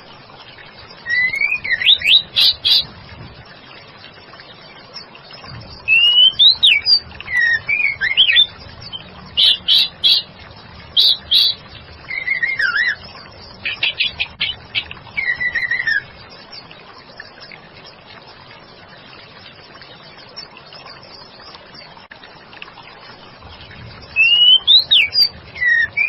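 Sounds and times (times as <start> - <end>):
bird singing whistled notes: 1.0 - 2.9, 5.7 - 10.3, 11.0 - 16.1, 24.1 - 26.0.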